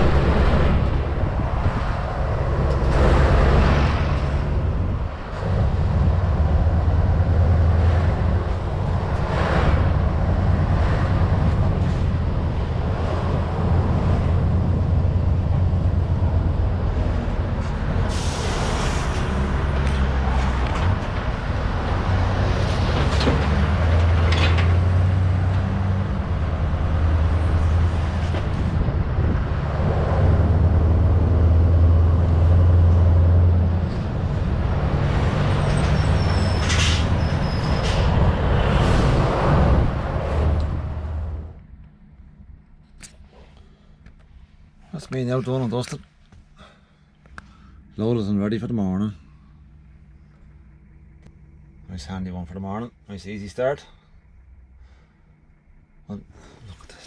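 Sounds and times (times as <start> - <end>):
diesel engine humming: 0.0 - 57.0
air hiss: 18.1 - 19.4
clanks: 22.6 - 24.9.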